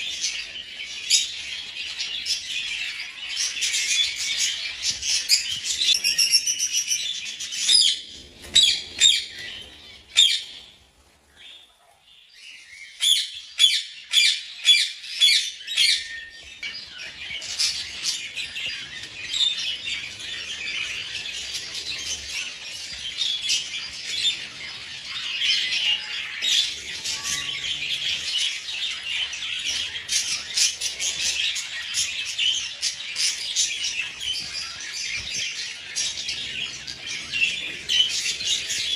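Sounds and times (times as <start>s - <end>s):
budgies chattering and squawking: 13.0s - 38.9s.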